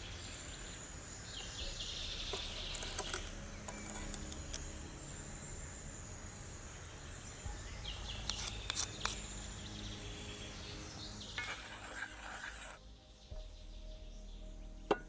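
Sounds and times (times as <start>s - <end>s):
high insect chirping: 0.0s - 15.0s.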